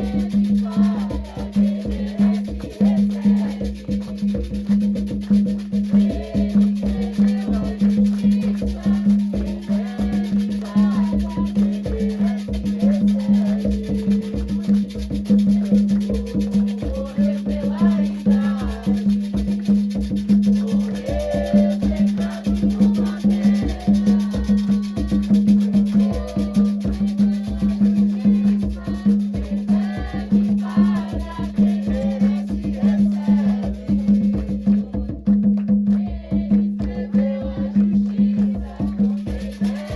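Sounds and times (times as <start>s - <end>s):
voices singing: 0.0s - 4.4s, 5.7s - 35.3s, 35.9s - 39.9s
hand drums: 0.0s - 39.9s
shakers: 0.0s - 39.9s
clicking percussion: 3.8s - 29.8s.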